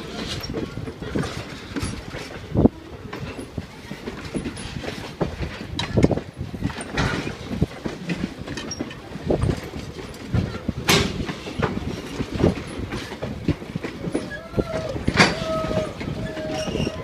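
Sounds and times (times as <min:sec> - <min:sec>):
railroad cars rumbling on track: 0:00.0 - 0:17.0
wheels clacking over rail joints: 0:00.0 - 0:17.0
knocks and clunks: 0:00.2 - 0:17.0.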